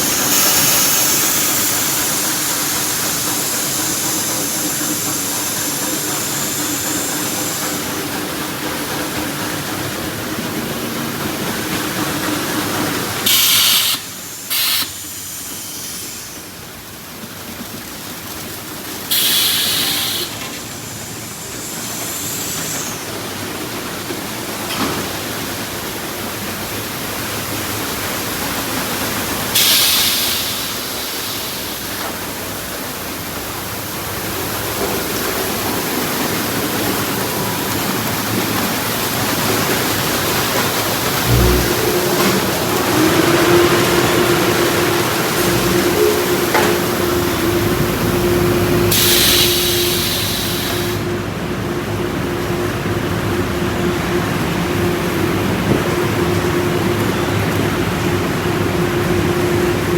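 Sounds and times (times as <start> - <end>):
loud hissing bursts: 0.0 - 24.6, 26.1 - 51.4
car wash water spray: 0.0 - 59.9
machine hum: 39.0 - 59.9.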